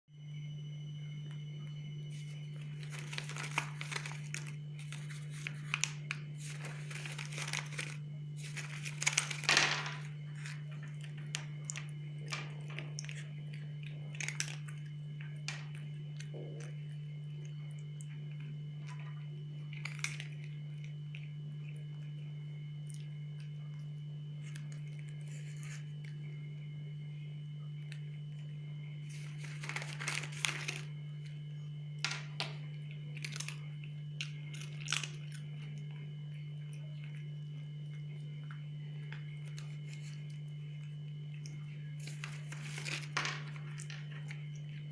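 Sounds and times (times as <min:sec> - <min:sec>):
steady low hum: 0:00.1 - 0:44.9
packaging crinkling and tearing: 0:02.1 - 0:13.3, 0:29.1 - 0:31.0, 0:42.0 - 0:44.0.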